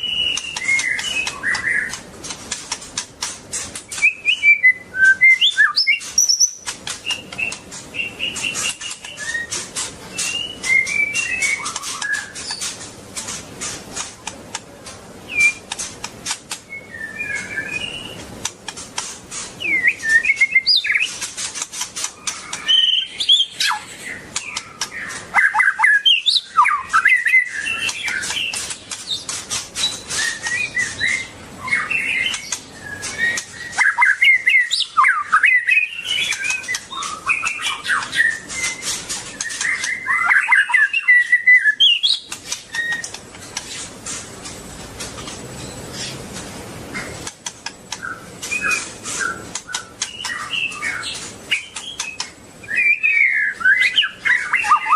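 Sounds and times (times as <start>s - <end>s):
bird singing whistled warbles: 0.0s - 2.1s, 3.8s - 12.8s, 15.3s - 15.8s, 16.6s - 18.2s, 19.6s - 21.3s, 22.1s - 43.2s, 47.9s - 54.9s.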